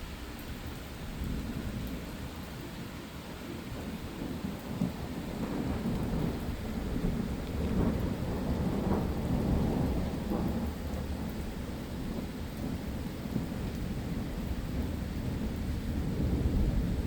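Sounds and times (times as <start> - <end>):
steady rain: 0.0 - 17.0
low rolling thunder: 4.1 - 17.0.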